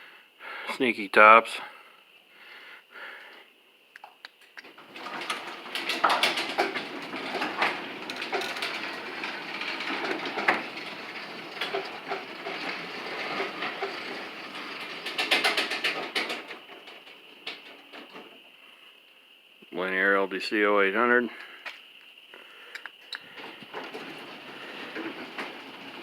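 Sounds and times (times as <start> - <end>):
garage door rumbling along track: 4.6 - 18.5, 23.2 - 26.0
rollers and hinges clattering: 4.6 - 18.5, 23.3 - 26.0.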